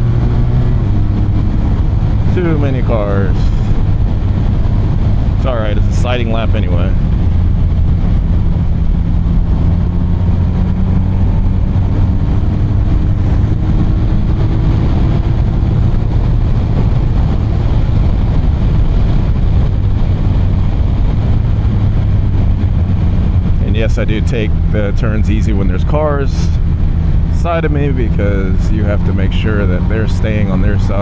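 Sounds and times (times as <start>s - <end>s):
motorcycle engine at speed: 0.0s - 31.0s
wind and road noise: 0.0s - 31.0s.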